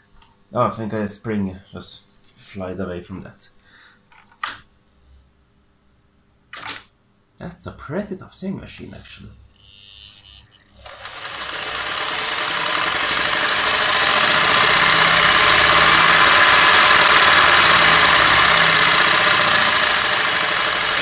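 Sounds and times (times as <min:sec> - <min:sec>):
sewing machine whirring: 0:09.6 - 0:21.0.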